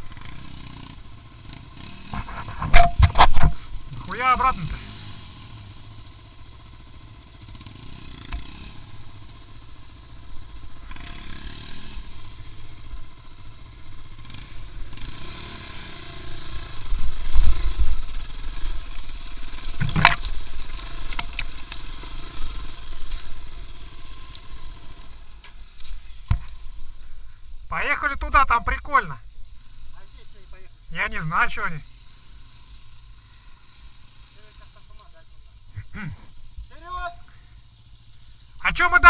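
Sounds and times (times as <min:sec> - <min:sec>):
engine rumbling: 0:00.0 - 0:39.0
sharp knock: 0:02.6 - 0:03.6.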